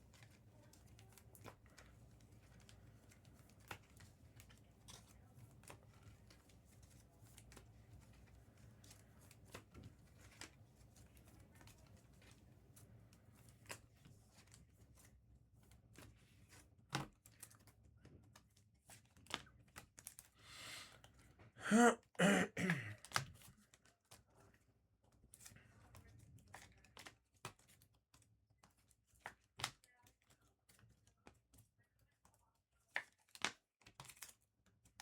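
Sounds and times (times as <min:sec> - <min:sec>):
person clearing throat: 0:21.6 - 0:23.0.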